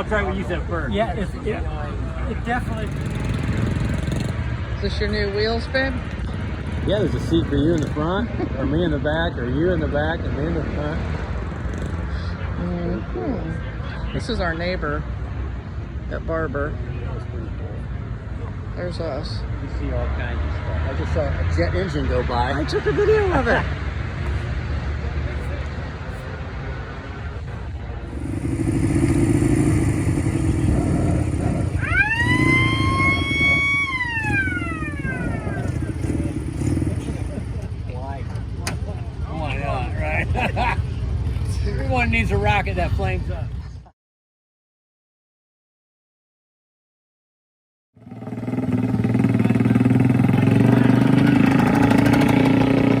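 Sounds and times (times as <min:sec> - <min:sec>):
motorcycle engine running: 0:02.4 - 0:08.3, 0:27.5 - 0:41.9, 0:48.0 - 0:53.0.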